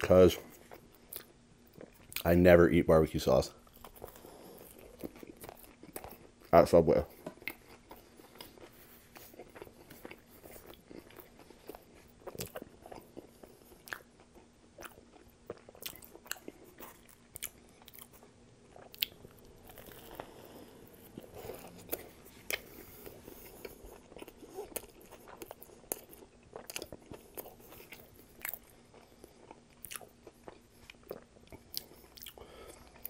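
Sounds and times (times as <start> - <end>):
chewing and biting a sandwich: 0.1 - 2.4, 3.6 - 6.5, 7.1 - 33.0
wet mouth clicks: 18.8 - 19.2.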